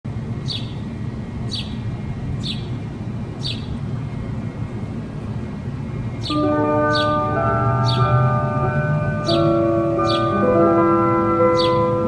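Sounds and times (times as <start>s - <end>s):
low outdoor rumble: 0.1s - 12.0s
bird chirping: 0.4s - 0.9s, 1.5s - 2.8s, 3.4s - 3.9s, 6.2s - 8.5s, 9.1s - 10.6s, 11.4s - 12.0s.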